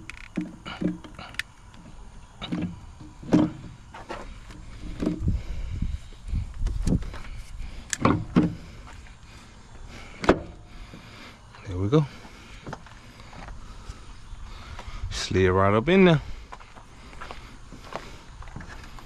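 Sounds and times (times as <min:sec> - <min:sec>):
metal knocks and clunks: 0:02.4 - 0:03.8.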